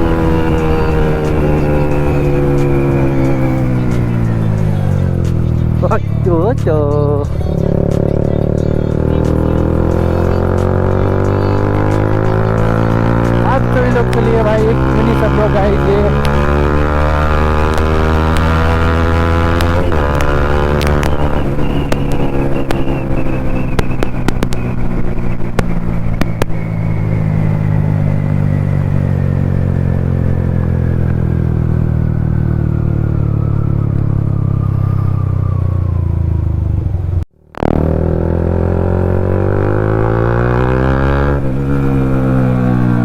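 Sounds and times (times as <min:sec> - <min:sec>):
motorcycle engine revs: 0:00.0 - 0:33.4, 0:37.0 - 0:43.0
exhaust crackling clicks: 0:11.4 - 0:27.4.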